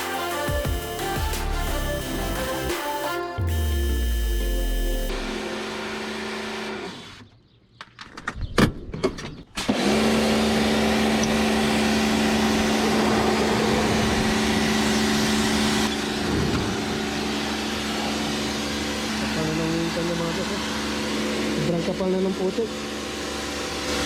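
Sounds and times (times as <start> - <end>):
pressure washer motor hum: 0.0 - 6.7.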